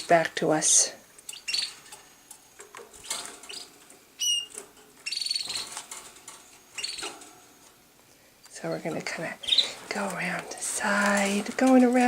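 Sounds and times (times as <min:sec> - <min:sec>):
canaries chirping: 0:00.0 - 0:08.0, 0:08.6 - 0:12.0
fast bird trill: 0:01.3 - 0:01.8, 0:03.0 - 0:05.8, 0:06.8 - 0:07.1.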